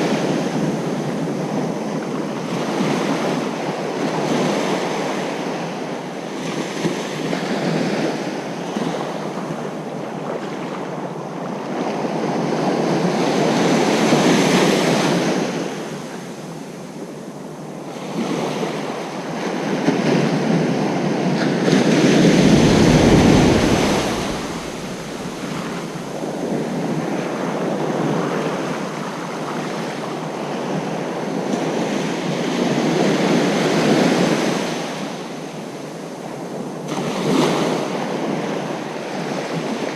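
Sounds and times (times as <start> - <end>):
ocean surf breaking: 21.5 - 26.8
wave crashing with deep rumble: 21.7 - 26.7.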